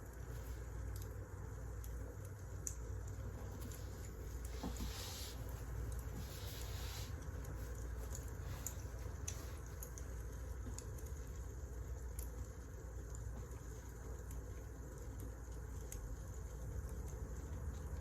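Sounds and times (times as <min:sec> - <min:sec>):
soft hiss: 0:02.8 - 0:10.8.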